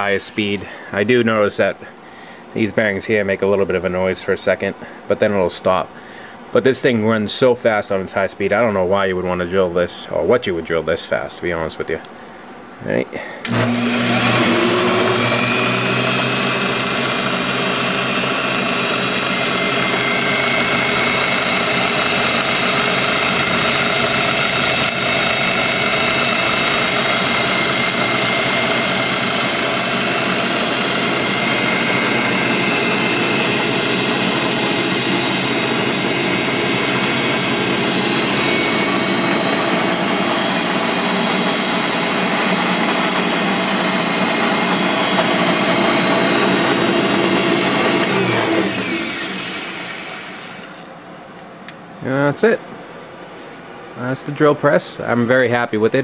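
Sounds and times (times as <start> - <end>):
drill press whirring and whining: 13.4 - 51.0.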